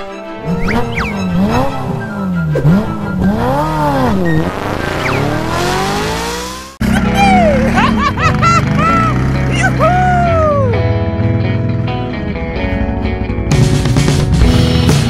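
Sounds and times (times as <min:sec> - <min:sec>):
sports car engine revving: 0:00.4 - 0:09.6.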